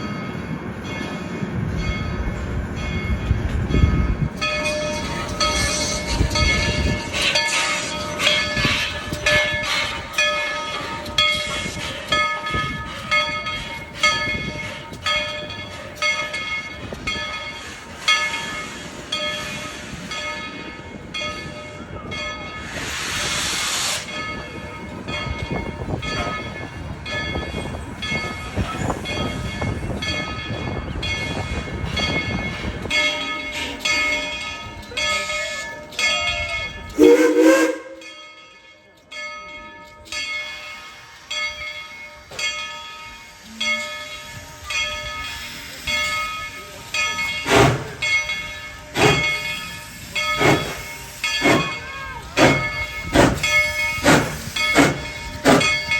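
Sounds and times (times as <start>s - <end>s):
locomotive bell ringing: 0.0s - 23.1s, 24.0s - 55.9s
steam hissing: 17.6s - 20.2s, 22.6s - 24.2s, 44.1s - 55.9s.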